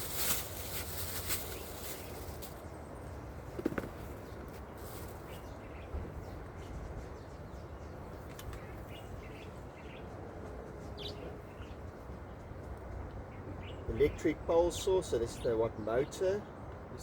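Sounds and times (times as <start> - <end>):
outdoor background noise: 0.0 - 17.0
birds chirping: 0.1 - 17.0.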